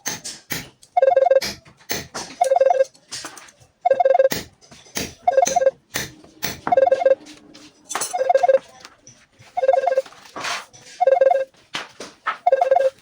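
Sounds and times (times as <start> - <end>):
electronic beeping tune: 1.0 - 1.6, 2.4 - 2.9, 3.8 - 4.5, 5.2 - 5.8, 6.5 - 7.2, 8.1 - 8.7, 9.6 - 10.1, 11.0 - 11.5, 12.5 - 13.0.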